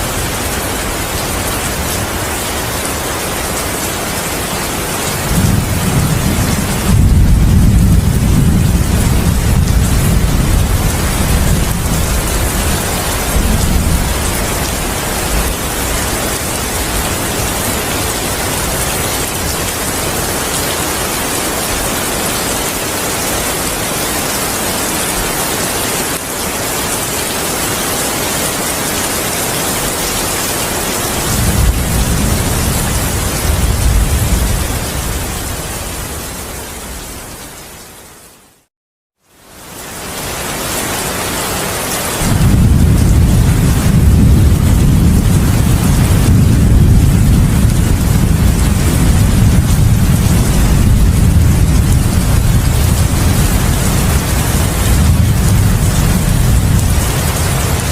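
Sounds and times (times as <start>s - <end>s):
heavy rain: 0.0s - 57.9s
rolling thunder: 5.1s - 17.7s, 31.2s - 36.4s, 42.2s - 57.9s.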